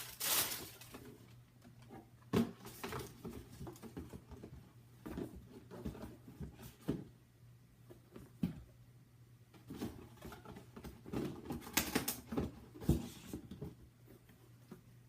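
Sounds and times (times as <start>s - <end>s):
rustling of sneaker box: 0.0s - 1.2s.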